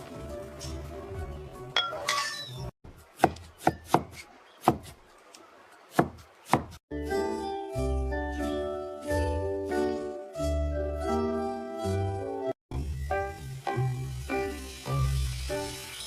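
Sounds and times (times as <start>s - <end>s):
background music: 0.0s - 2.6s, 6.9s - 16.0s.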